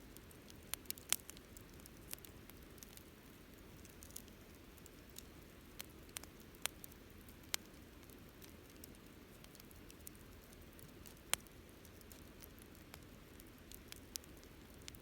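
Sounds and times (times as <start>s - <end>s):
campfire crackles and pops: 0.1s - 15.0s.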